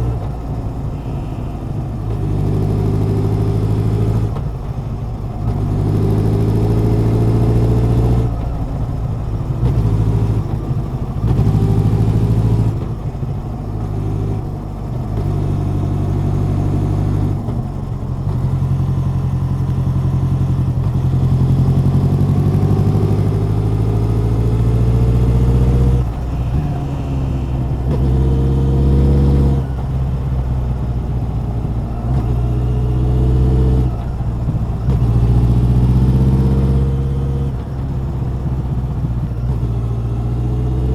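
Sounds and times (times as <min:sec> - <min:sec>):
motorcycle exhaust revving: 0:19.2 - 0:40.9.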